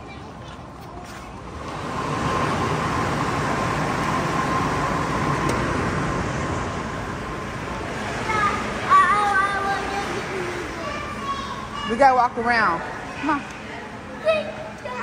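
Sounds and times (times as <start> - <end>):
train rumbling with high whine: 1.3 - 11.9.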